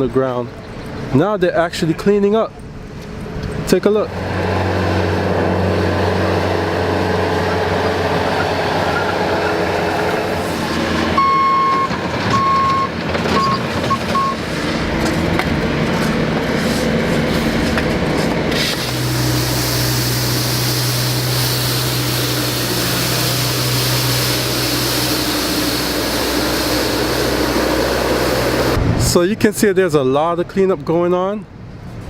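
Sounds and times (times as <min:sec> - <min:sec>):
diesel engine droning: 0:00.0 - 0:29.2
backup alarm beeping: 0:11.1 - 0:14.4.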